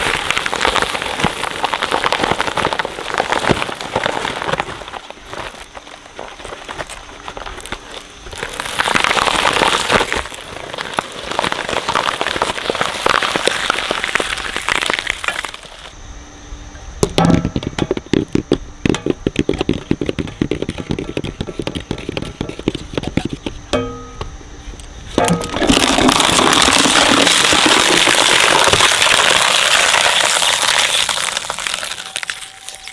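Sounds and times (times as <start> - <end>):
shredder crushing and crackling: 0.0 - 15.9, 25.1 - 32.9.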